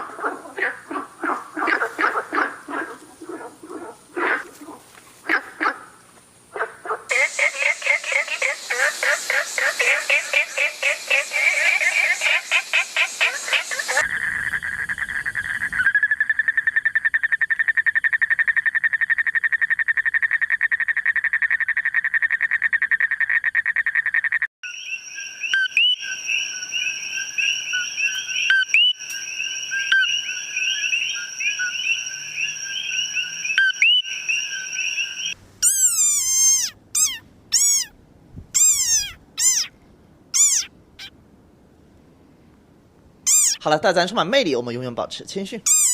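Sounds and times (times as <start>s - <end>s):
frog calls: 0.0s - 37.9s, 38.6s - 41.2s, 43.3s - 43.7s, 45.7s - 45.9s
frog chirping: 0.0s - 37.9s, 38.6s - 39.7s, 40.3s - 41.2s, 43.3s - 43.7s, 45.7s - 45.9s
toad trilling: 7.1s - 29.1s, 29.7s - 38.0s, 38.6s - 41.1s, 43.2s - 43.7s, 45.7s - 45.9s
frog squeaks dropping in pitch: 29.8s - 38.0s, 38.6s - 41.1s, 43.3s - 43.7s, 45.6s - 45.9s.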